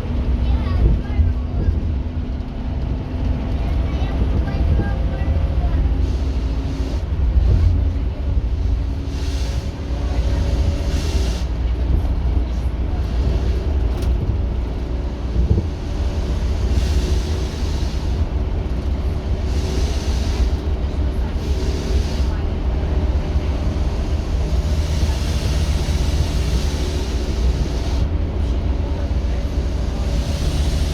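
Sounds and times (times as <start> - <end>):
bus diesel engine rumbling: 0.0 - 30.9
hiss: 9.0 - 11.5, 16.2 - 18.3, 19.4 - 20.7, 21.3 - 22.4, 23.8 - 28.1, 29.7 - 30.9.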